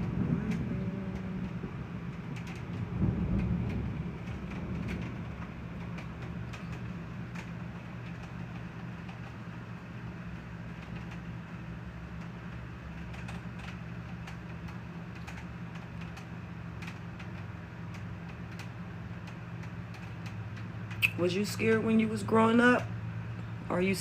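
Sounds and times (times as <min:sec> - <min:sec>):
raindrops striking hard surface: 0:00.0 - 0:09.6
steady low hum: 0:00.0 - 0:24.0.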